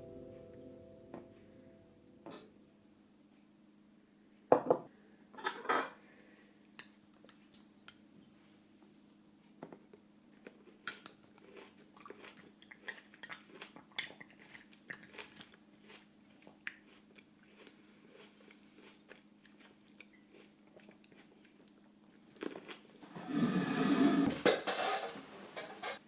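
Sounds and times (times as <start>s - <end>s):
faint steady hum: 0.0s - 26.0s
crisp food crunching: 10.4s - 23.1s.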